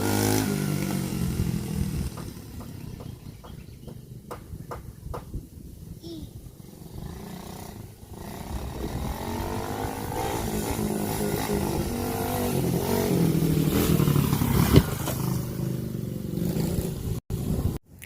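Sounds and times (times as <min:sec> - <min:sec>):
dirt bike engine revving: 0:00.0 - 0:03.5, 0:06.6 - 0:17.2.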